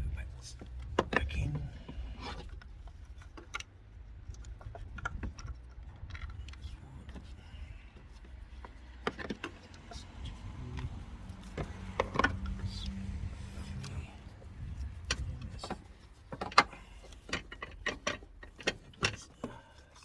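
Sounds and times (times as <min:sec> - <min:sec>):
hand tools clicking and clinking: 0:00.5 - 0:20.0.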